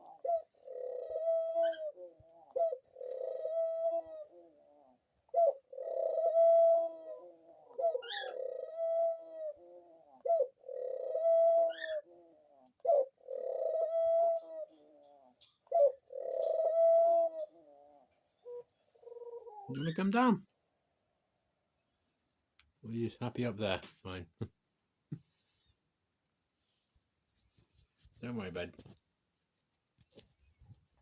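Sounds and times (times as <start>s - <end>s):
dove cooing: 0.0s - 20.2s.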